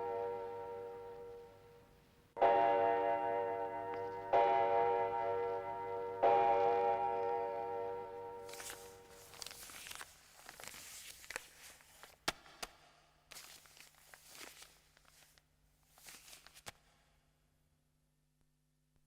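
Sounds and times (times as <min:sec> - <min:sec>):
rustling: 0:08.4 - 0:12.2, 0:13.3 - 0:16.8.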